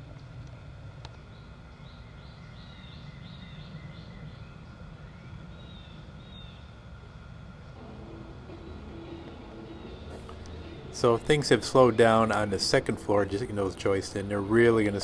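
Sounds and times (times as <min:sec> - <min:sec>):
bird chirping: 0:00.6 - 0:15.0
low rumble: 0:07.8 - 0:15.0.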